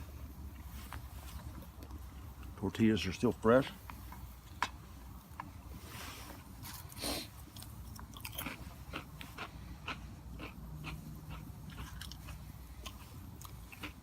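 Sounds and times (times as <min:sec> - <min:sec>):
person chewing crunchy crackers: 0:06.4 - 0:14.0.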